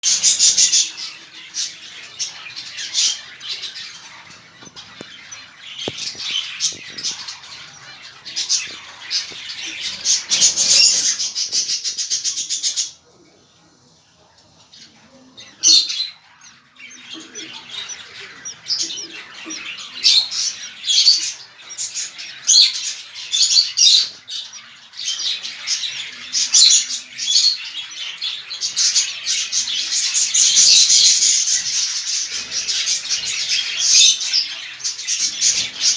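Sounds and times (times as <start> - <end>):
budgerigars chirping and chattering: 0.0 - 35.9.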